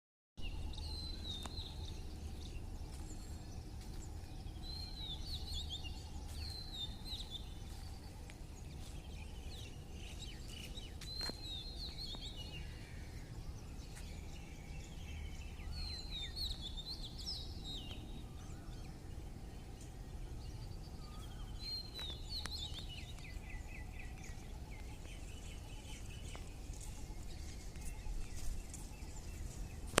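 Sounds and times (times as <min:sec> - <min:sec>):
low background rumble: 0:00.4 - 0:16.0
small birds chirping: 0:00.4 - 0:30.0.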